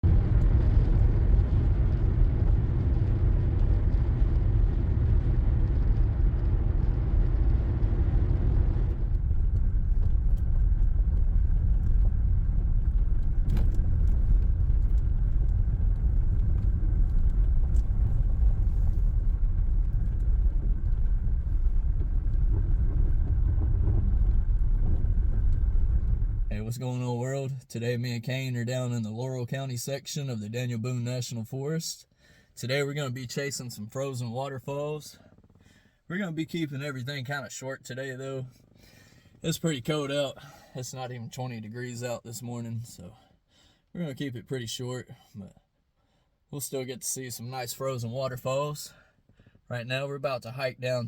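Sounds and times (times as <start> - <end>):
car road and engine rumble: 0.0 - 27.0.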